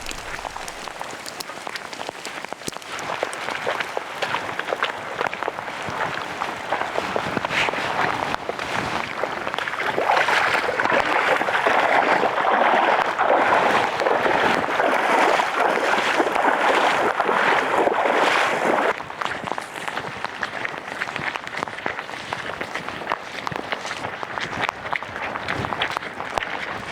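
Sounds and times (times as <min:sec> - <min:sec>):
steady rain falling: 0:00.0 - 0:04.7.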